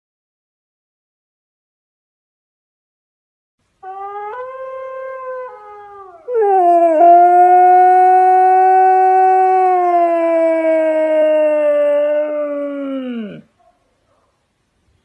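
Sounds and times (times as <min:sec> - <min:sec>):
dog howling: 0:03.8 - 0:13.5.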